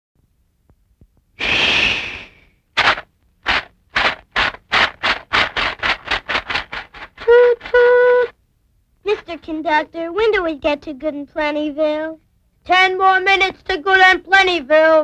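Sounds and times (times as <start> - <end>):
steam hissing: 1.4 - 7.1
steam locomotive chuffing: 2.8 - 7.8.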